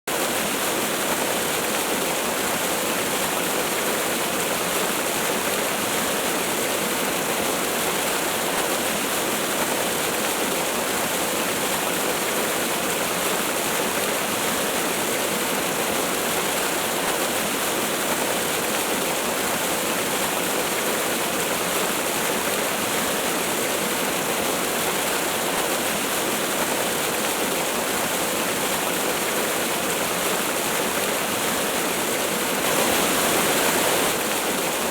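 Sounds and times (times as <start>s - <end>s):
waterfall rushing: 23.9s - 34.9s.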